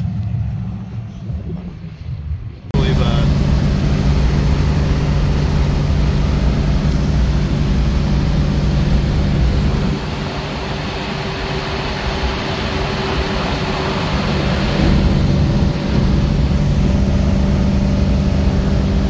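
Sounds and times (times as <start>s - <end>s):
car engine and road noise drone: 0.0s - 19.0s.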